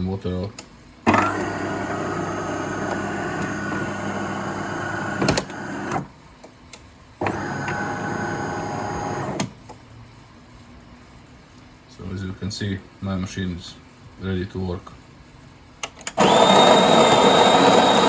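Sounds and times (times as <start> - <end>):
coffee machine motor hum: 1.1 - 6.1, 7.2 - 9.5, 16.2 - 18.0.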